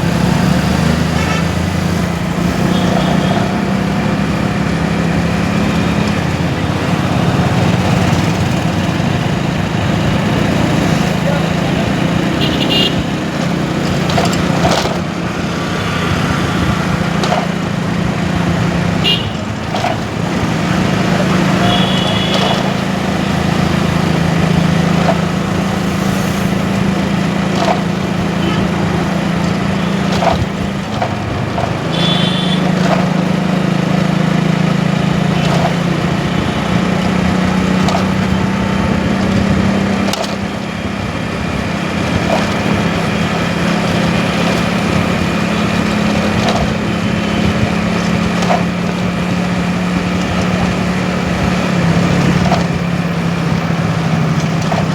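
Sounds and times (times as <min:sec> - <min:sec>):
motorcycle engine running: 0:00.0 - 0:54.9
road and wind noise: 0:00.0 - 0:54.9
short horn honks: 0:01.1 - 0:01.7, 0:02.6 - 0:03.6, 0:12.3 - 0:13.2, 0:19.0 - 0:19.6, 0:21.4 - 0:22.8, 0:28.4 - 0:28.9, 0:31.8 - 0:32.9.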